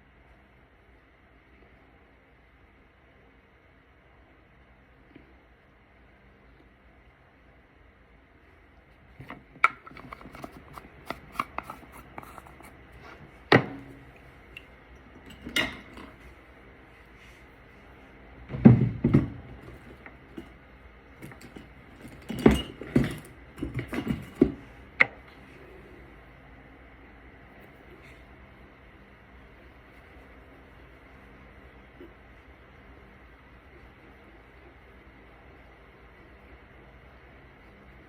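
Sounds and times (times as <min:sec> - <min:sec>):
makeup containers clicking and knocking: 0:09.3 - 0:12.7.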